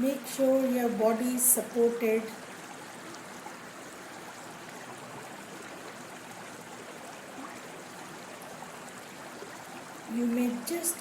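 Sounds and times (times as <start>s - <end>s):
stream water babbling: 0.0s - 11.0s.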